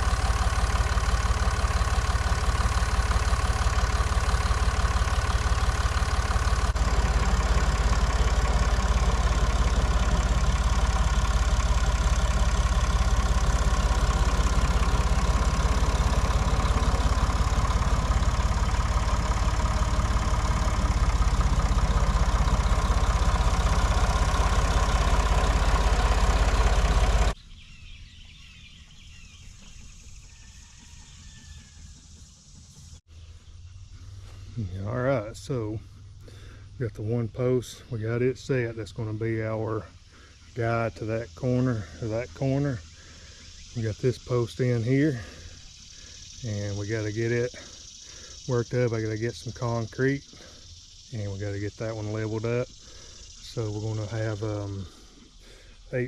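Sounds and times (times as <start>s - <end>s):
tractor engine running: 0.0s - 27.4s, 29.4s - 56.0s
faint bird chirps: 27.3s - 36.8s, 39.1s - 56.0s.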